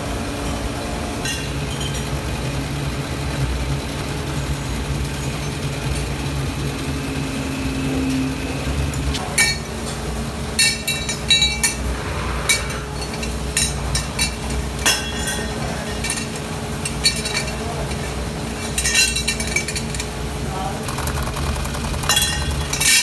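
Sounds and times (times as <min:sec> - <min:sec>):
low machine hum: 0:00.0 - 0:23.0
metal parts clinking: 0:09.2 - 0:11.9, 0:12.5 - 0:23.0.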